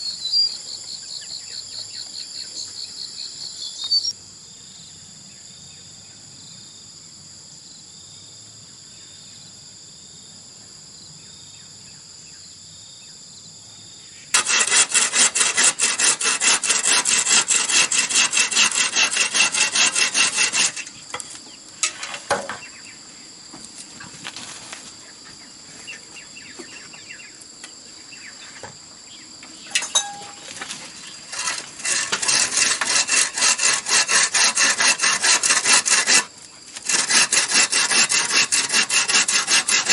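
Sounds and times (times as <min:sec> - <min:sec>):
crickets trilling: 0:00.0 - 0:39.9
hand tool rasping bamboo: 0:14.3 - 0:22.6, 0:29.7 - 0:39.9
bamboo knocks and rubs: 0:20.5 - 0:22.7.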